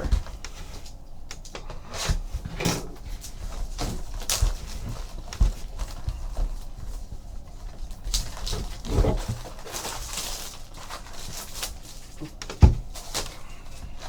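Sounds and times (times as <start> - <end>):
plastic wrap crinkling: 3.0 - 14.0
cardboard knocking on table: 12.2 - 12.9.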